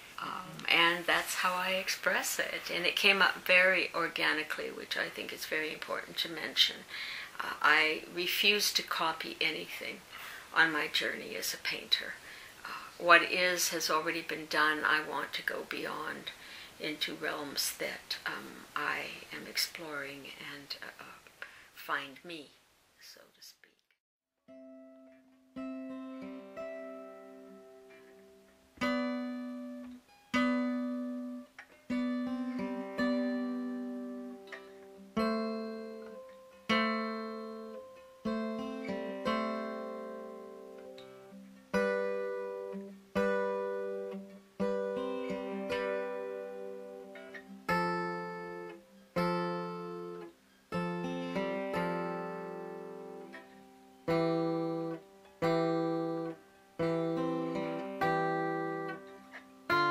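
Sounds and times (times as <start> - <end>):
acoustic guitar chords: 24.4 - 59.9.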